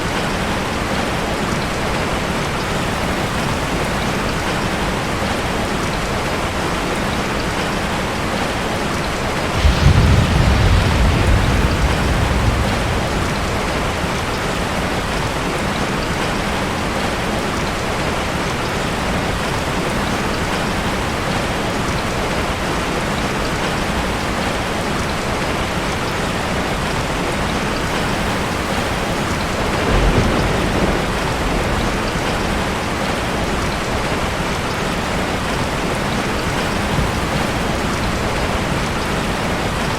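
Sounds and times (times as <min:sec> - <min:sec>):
heavy rain: 0:00.0 - 0:39.9
thunder rumbling: 0:09.4 - 0:17.2, 0:26.5 - 0:39.9.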